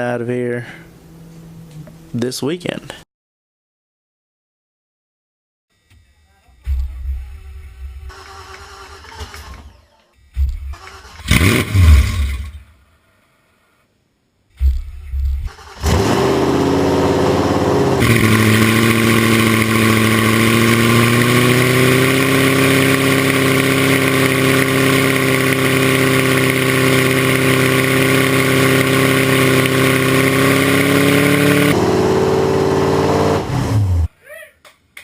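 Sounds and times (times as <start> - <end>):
car engine starting and idling loudly: 8.1 - 12.6, 15.4 - 34.1.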